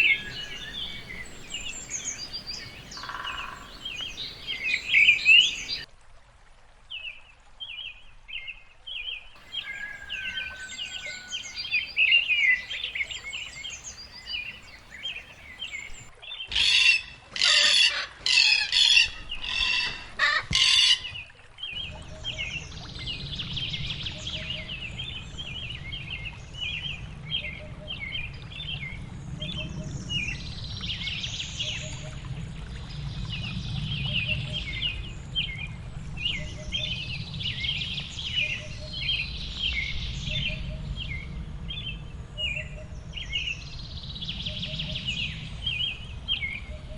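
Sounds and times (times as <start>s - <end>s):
loud harsh bird calls: 0.0s - 5.9s, 9.4s - 16.1s
low steady rush: 0.0s - 5.9s, 9.4s - 16.1s
songbirds chirping: 0.0s - 5.9s, 9.4s - 16.1s.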